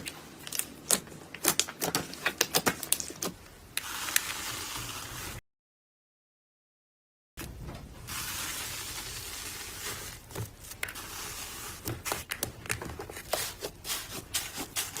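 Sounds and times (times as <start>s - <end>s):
hands squishing slime: 9.6s - 15.0s.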